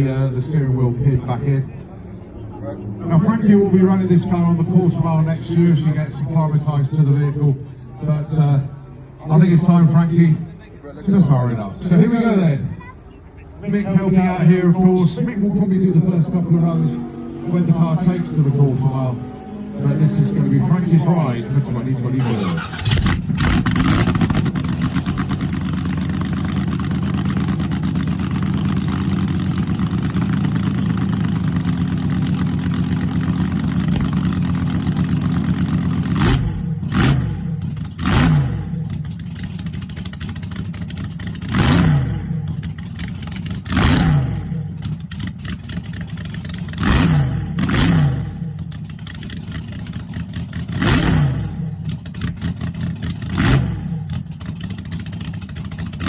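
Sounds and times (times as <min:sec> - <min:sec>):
drag car engine revving: 0:14.8 - 0:56.0.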